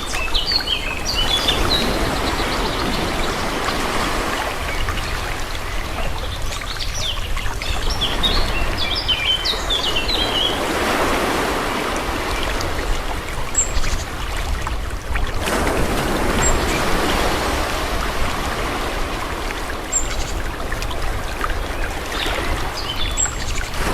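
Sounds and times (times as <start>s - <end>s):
small birds chirping: 0.0s - 10.7s, 19.2s - 23.9s
sea water washing in gently: 0.0s - 23.9s.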